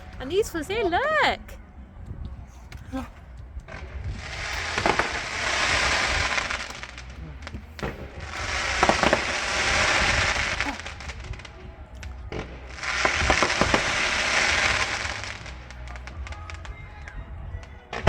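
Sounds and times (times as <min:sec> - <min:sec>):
crackling firework showers: 0:00.0 - 0:18.0
firework bangs: 0:03.7 - 0:18.0.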